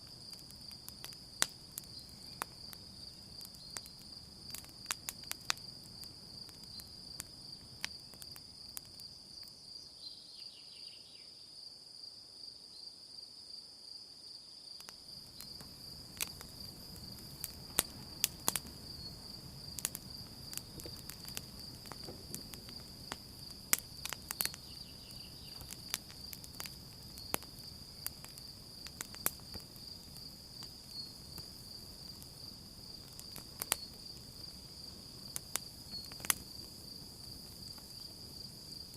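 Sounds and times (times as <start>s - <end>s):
campfire crackling and popping: 0.0s - 9.6s, 14.8s - 38.9s
crickets chirping: 0.0s - 38.9s.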